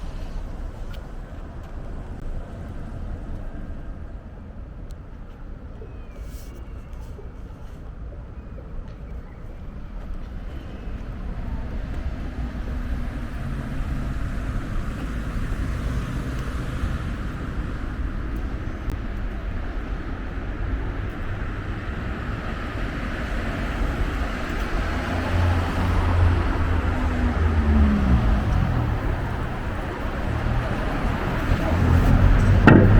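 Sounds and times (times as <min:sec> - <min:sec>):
tyre noise on road: 0:00.0 - 0:32.9
vehicle engine hum: 0:07.0 - 0:32.9.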